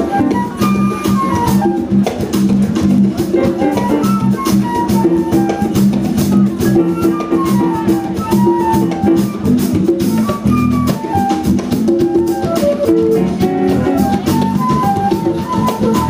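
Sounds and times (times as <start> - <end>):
drum kit beat: 0.0 - 16.0
jazz band playing: 0.0 - 16.0.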